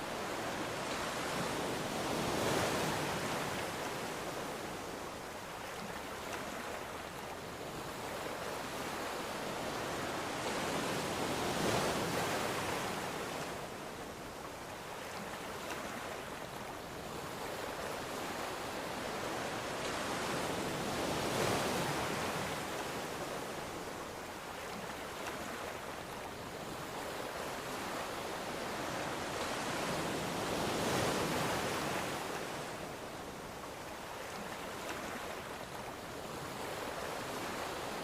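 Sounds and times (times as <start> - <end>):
ocean waves on shore: 0.0 - 38.0.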